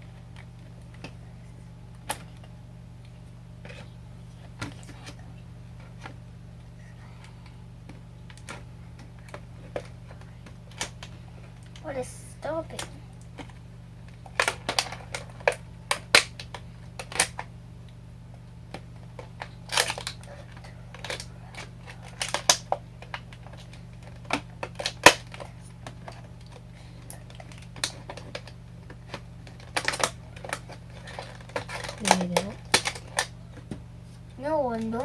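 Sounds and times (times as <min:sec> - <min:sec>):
low steady hum: 0:00.0 - 0:35.0
plastic packaging crinkling: 0:18.7 - 0:33.4.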